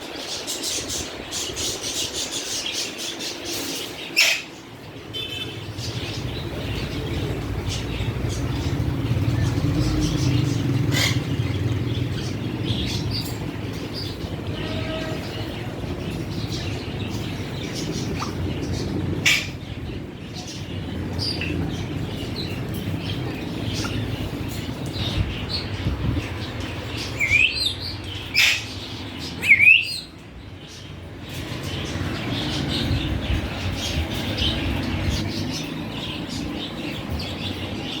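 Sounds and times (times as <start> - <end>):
parrots chirping: 0.1 - 38.0
steady low rumble: 5.6 - 29.4.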